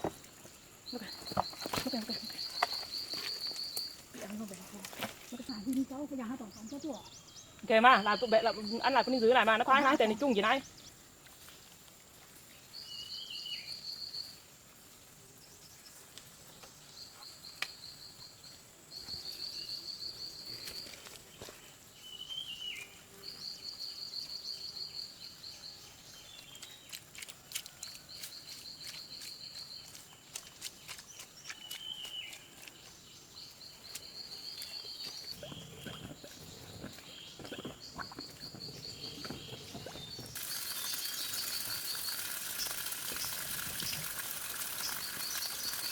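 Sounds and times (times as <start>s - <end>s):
bird buzzy trill: 37.6s - 45.9s.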